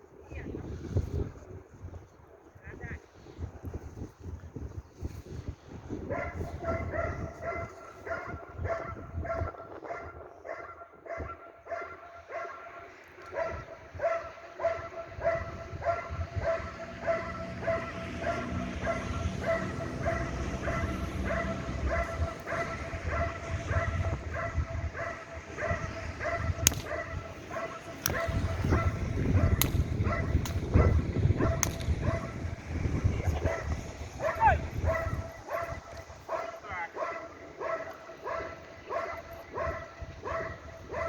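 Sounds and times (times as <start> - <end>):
dog barking: 6.1 - 32.4, 33.3 - 41.0
sharp cracks: 26.4 - 32.5.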